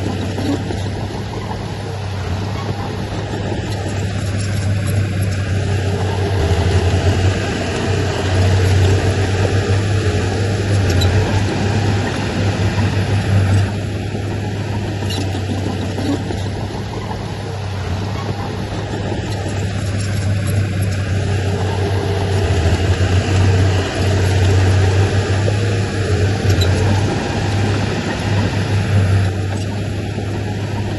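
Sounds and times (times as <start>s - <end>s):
heavy diesel machinery running: 0.0s - 30.9s.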